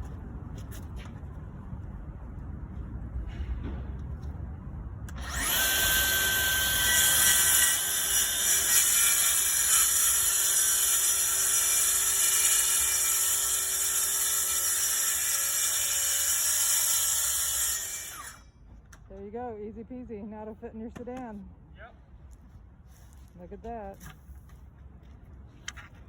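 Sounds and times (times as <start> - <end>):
track saw cutting plywood: 5.1 - 18.4.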